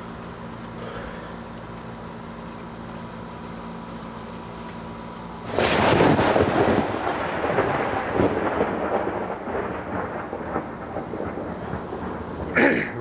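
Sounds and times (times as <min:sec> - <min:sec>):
thunderclap rumbling: 0:05.5 - 0:13.0.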